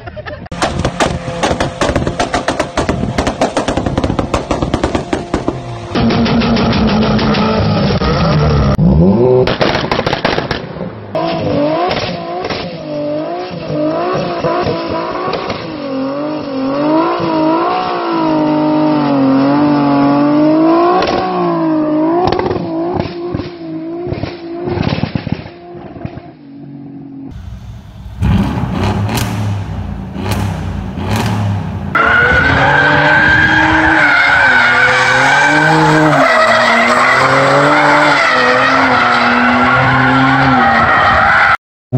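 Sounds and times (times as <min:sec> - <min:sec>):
car engines revving high: 0:00.4 - 0:10.0, 0:11.1 - 0:25.2, 0:27.3 - 0:41.6
exhaust bangs: 0:00.5 - 0:08.8, 0:27.3 - 0:40.2.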